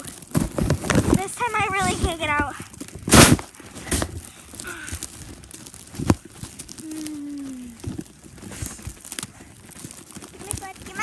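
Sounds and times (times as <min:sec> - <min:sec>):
snow crunching: 0:00.0 - 0:11.0
person groaning: 0:06.8 - 0:07.8.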